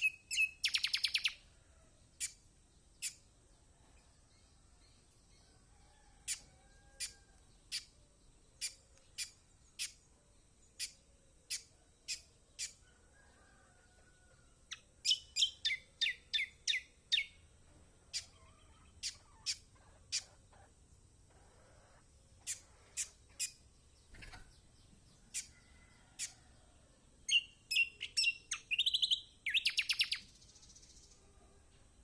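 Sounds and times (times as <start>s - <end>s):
bird giving high chirps: 0.0s - 1.4s.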